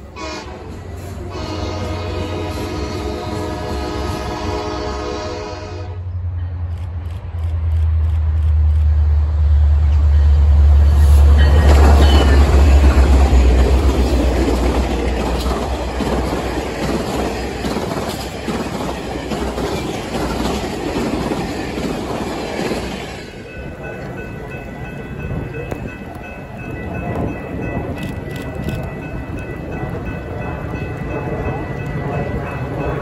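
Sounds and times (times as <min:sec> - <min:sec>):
locomotive engine drone: 0:00.0 - 0:33.0
train wheels clattering on rails: 0:09.8 - 0:33.0.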